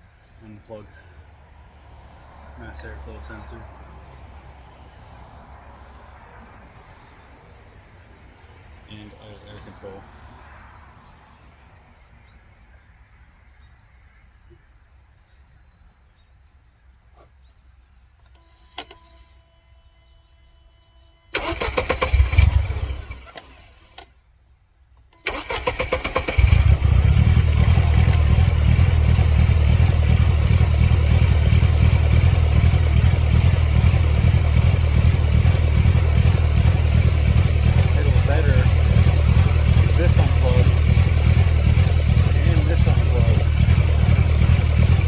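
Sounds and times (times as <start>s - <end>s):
starter motor cranking: 21.4s - 24.0s, 25.2s - 28.5s, 35.4s - 45.0s
car engine running: 26.4s - 45.0s.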